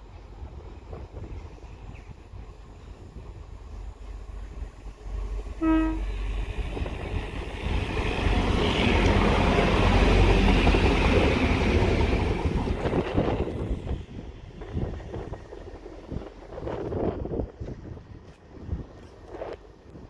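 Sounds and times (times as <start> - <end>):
diesel train passing: 0.0 - 20.0
train horn: 5.6 - 6.2.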